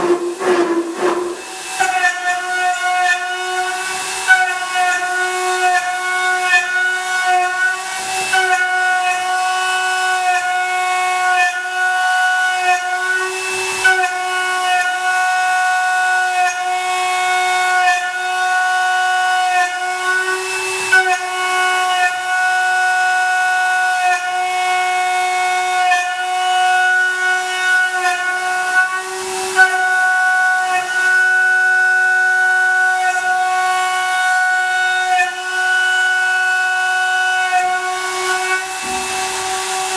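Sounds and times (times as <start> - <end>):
metal scrapes: 0.0 - 3.3
milling machine cutting whine: 0.0 - 39.9.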